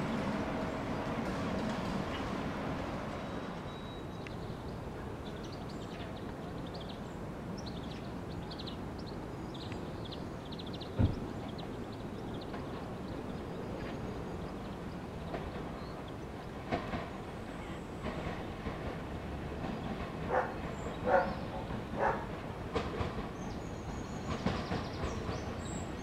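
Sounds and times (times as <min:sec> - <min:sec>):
electric train rumbling: 0:00.0 - 0:26.0
small birds chirping: 0:19.6 - 0:22.3, 0:23.1 - 0:26.0.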